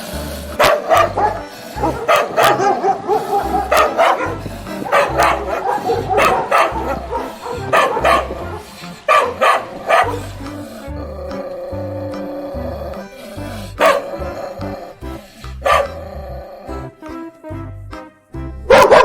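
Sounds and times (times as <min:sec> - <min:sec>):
background music with steady beat: 0:00.0 - 0:19.0
dog barking: 0:00.6 - 0:10.3, 0:13.8 - 0:14.8, 0:15.6 - 0:16.0, 0:18.7 - 0:19.0.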